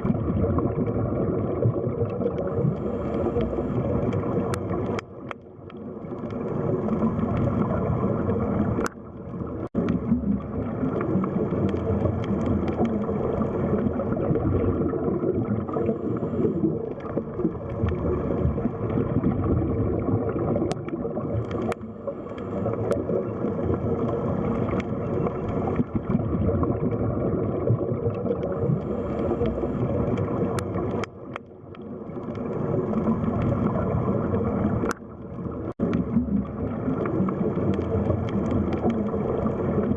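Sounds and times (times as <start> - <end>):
bubbling and gurgling water: 0.0 - 39.9
muffled underwater rumble: 0.0 - 39.9.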